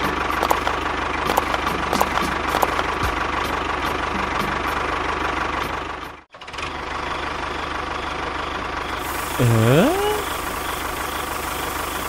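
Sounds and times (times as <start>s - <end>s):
engine running with knocking pulse: 0.4s - 6.1s.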